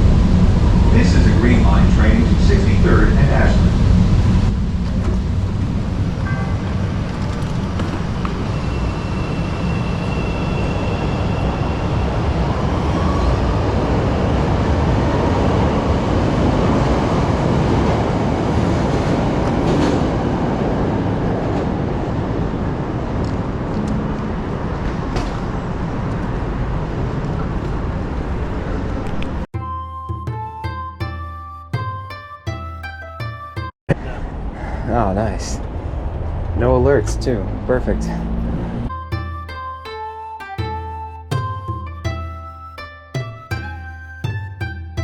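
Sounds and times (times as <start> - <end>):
train wheels and motors rumbling: 0.0 - 29.5, 33.9 - 39.0.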